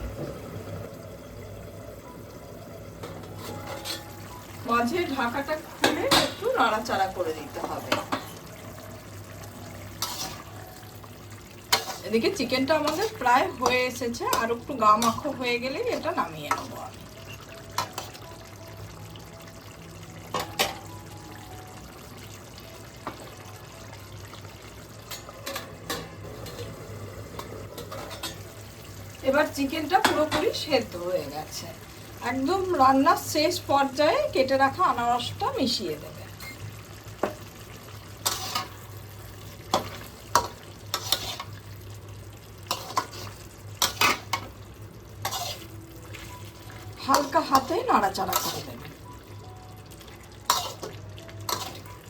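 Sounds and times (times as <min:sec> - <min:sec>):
spatula scraping a pot: 0:10.0 - 0:10.5, 0:11.7 - 0:12.2, 0:38.2 - 0:38.7, 0:40.9 - 0:41.6, 0:42.7 - 0:44.2, 0:45.2 - 0:45.8, 0:50.5 - 0:51.9.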